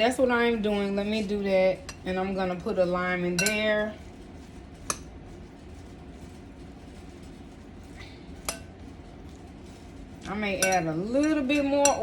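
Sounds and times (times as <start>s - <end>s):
low steady hum: 0.0s - 12.0s
utensil clinking against bowl: 3.2s - 3.9s, 8.4s - 8.8s, 10.3s - 12.0s.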